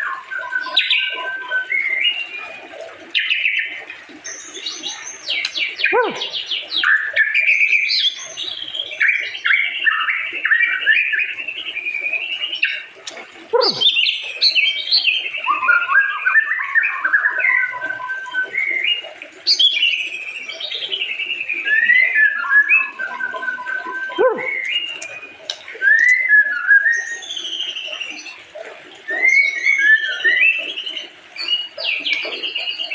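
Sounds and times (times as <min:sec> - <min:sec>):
bird singing whistled trills: 0:13.5 - 0:28.4, 0:29.1 - 0:32.9.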